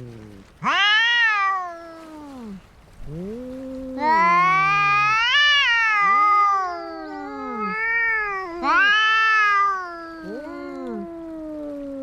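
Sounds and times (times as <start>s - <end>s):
cats yowling in a fight: 0.0s - 12.0s.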